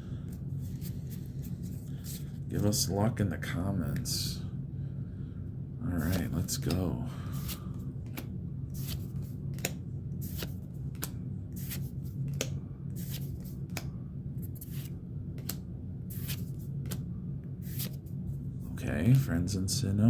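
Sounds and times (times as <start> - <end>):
steady low hum: 0.0 - 20.0
trading cards snapping: 6.0 - 6.8, 7.4 - 17.0.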